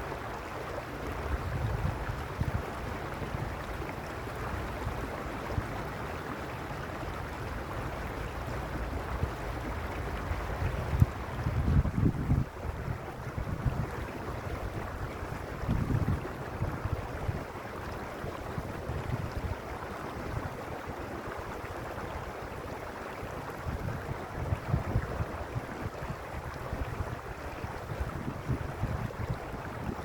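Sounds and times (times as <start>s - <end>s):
stream rushing over stones: 0.0s - 30.0s
wind buffeting microphone: 1.2s - 3.7s, 9.0s - 21.3s, 23.4s - 30.0s.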